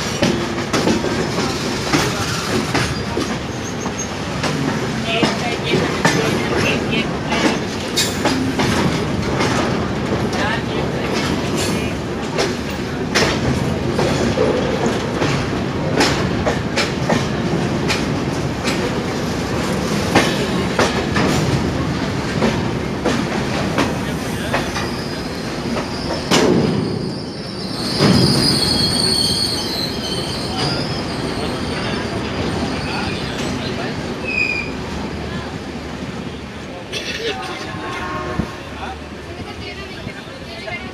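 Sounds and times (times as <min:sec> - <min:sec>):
train wheels knocking on rail joints: 0:00.0 - 0:27.0
train rolling rumble: 0:00.0 - 0:40.9
high wheel squeal: 0:24.8 - 0:33.4, 0:34.2 - 0:34.8.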